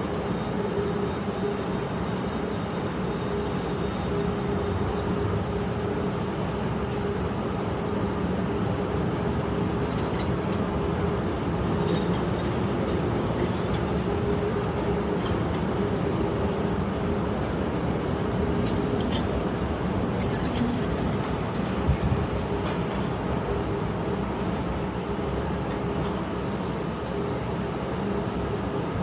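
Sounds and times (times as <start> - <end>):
underground train humming and rumbling: 0.0 - 29.0.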